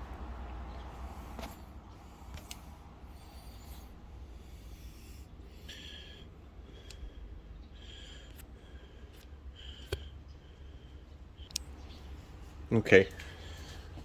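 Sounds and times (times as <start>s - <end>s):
low steady rumble: 0.0s - 14.0s
faint clicks and handling: 1.1s - 4.0s.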